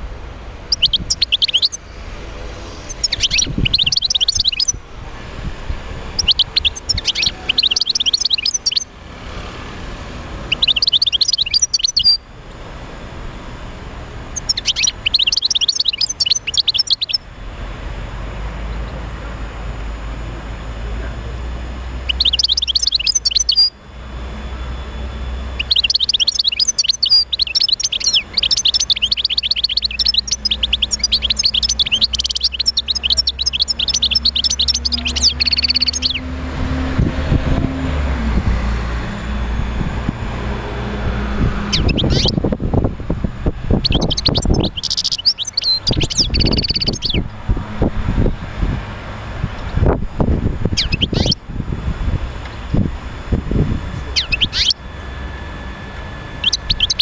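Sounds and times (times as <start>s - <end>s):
steady low hum: 0.0s - 57.0s
goldfinch twittering song: 0.6s - 1.8s, 2.6s - 4.8s, 6.0s - 8.9s, 10.4s - 12.2s, 14.3s - 17.3s, 22.0s - 23.8s, 25.3s - 36.5s, 41.5s - 42.5s, 43.8s - 47.4s, 50.7s - 51.4s, 54.0s - 54.8s, 56.3s - 57.0s.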